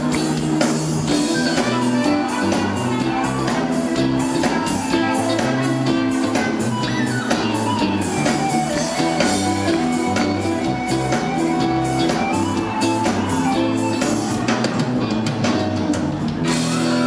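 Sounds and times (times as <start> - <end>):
bass notes: 0.0 - 17.0
drum kit: 0.0 - 17.0
electric guitar: 0.0 - 17.0.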